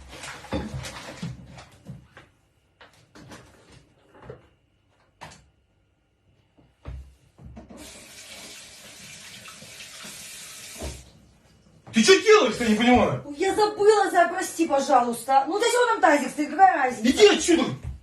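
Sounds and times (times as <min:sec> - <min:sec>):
water pouring through open drain: 0:07.8 - 0:11.2.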